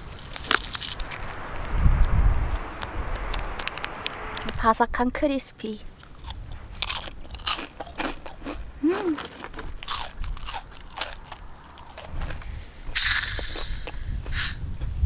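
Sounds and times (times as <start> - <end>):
crunching fried chicken: 6.0 - 12.5.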